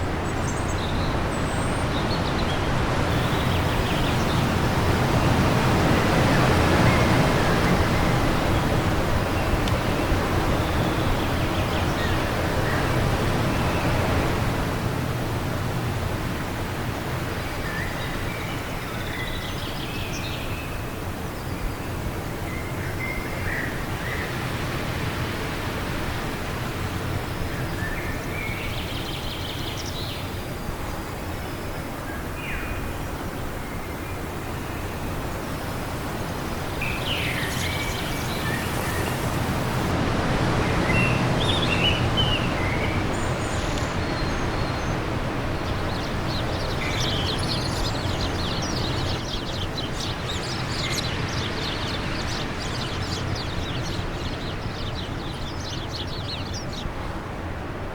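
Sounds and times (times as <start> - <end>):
wind blowing in gusts: 0.0 - 57.9
bird chirps: 3.2 - 4.6, 31.6 - 39.9.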